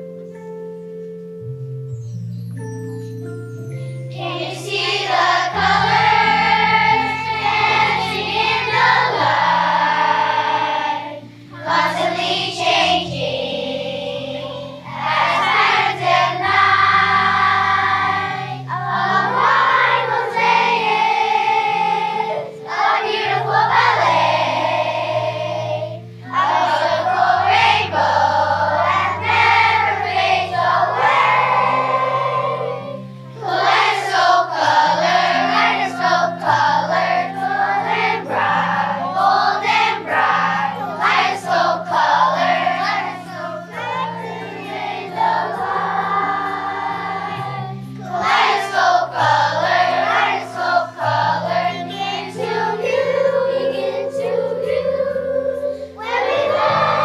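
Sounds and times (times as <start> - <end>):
instrumental accompaniment: 0.0 - 57.0
children's choir singing: 4.0 - 57.0.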